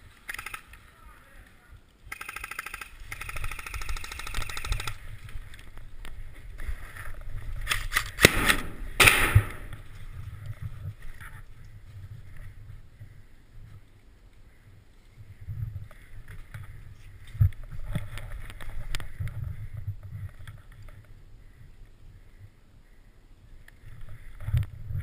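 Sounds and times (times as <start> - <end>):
airsoft gun full-auto burst: 2.1 - 5.0
wind rumble on microphone: 3.0 - 25.0.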